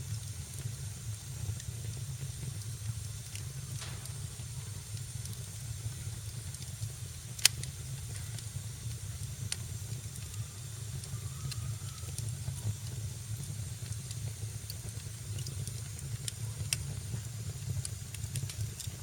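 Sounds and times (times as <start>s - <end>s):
flames roaring and hissing: 0.0s - 19.0s
wood fire crackling: 0.0s - 19.0s
loud sharp pop: 3.8s - 4.4s.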